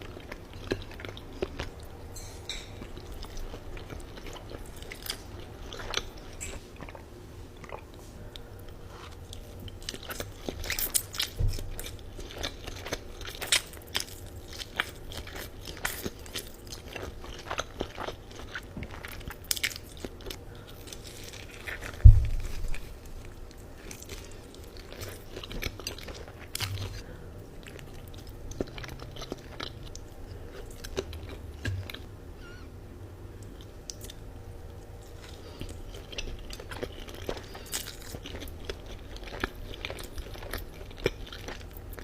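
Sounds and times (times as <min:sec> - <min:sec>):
heavy thump: 0:22.0 - 0:22.8
chewing and biting noodles: 0:35.1 - 0:42.0.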